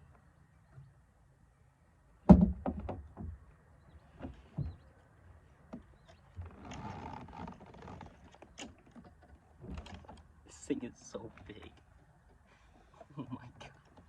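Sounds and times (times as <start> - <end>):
knocks and clatter in a kayak: 2.2 - 5.0, 5.6 - 14.0.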